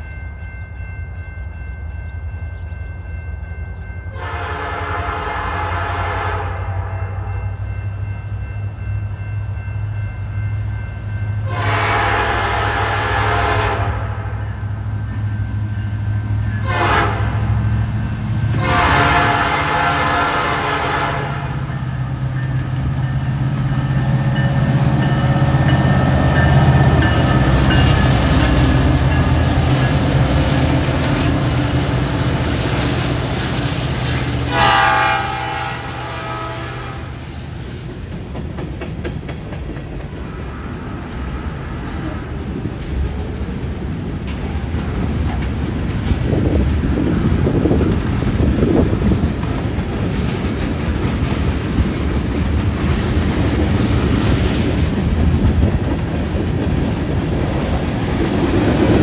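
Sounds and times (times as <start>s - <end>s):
train air horn blasts: 4.1s - 7.3s, 11.4s - 14.5s, 16.6s - 17.6s, 18.6s - 21.7s, 34.1s - 37.2s
locomotive engines rumbling: 7.6s - 59.0s
train wheels rattling on rails: 14.9s - 59.0s.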